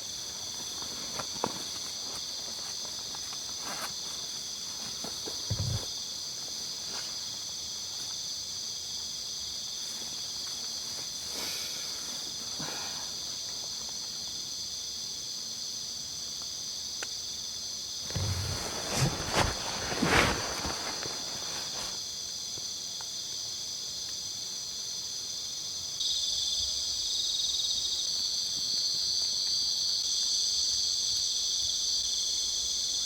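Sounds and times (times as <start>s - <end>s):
rustling: 0.0s - 8.2s, 18.0s - 22.0s
insect chorus trilling: 0.0s - 33.0s.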